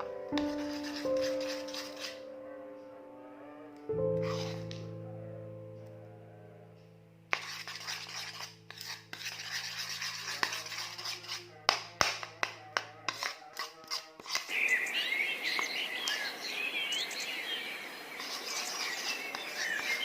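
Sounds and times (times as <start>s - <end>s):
held music chord: 0.0s - 7.9s
slime stirred with wet scraping: 7.4s - 14.6s, 18.2s - 20.0s.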